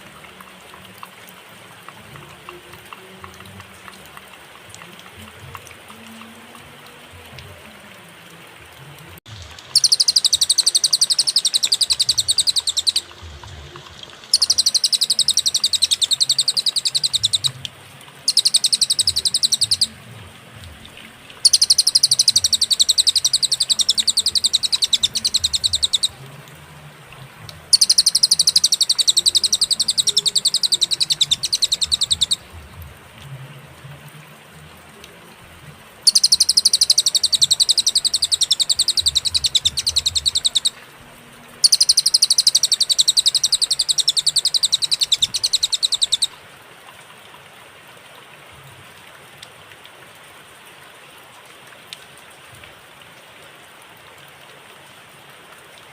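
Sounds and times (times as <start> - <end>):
bird singing high-pitched trill: 9.8 - 13.2, 14.3 - 17.6, 18.3 - 20.0, 21.4 - 26.2, 27.7 - 32.5, 36.1 - 40.8, 41.6 - 46.3.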